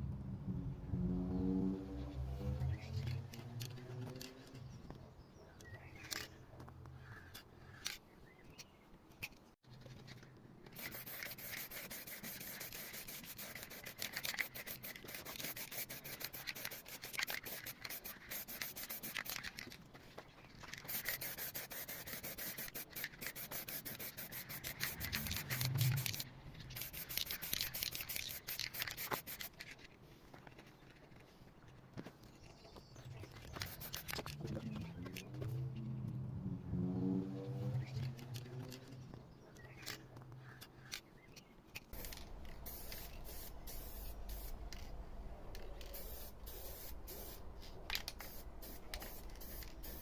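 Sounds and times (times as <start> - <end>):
sandpaper rubbing on metal panel: 10.8 - 19.2, 21.0 - 26.2.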